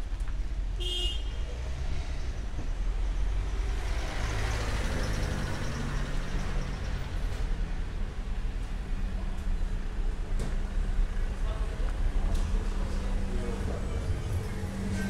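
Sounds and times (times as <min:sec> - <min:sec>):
low traffic rumble: 0:00.0 - 0:15.0
vehicle passing by: 0:03.3 - 0:06.8.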